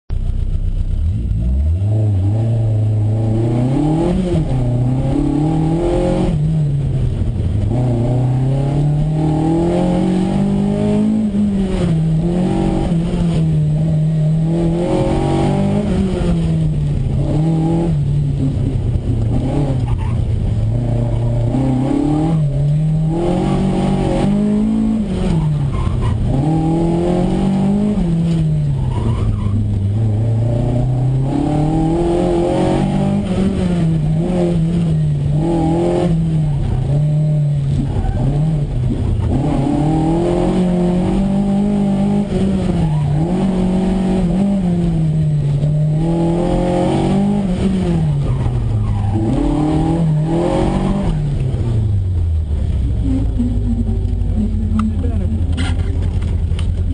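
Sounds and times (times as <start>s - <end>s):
car engine revving: 0.1s - 56.9s.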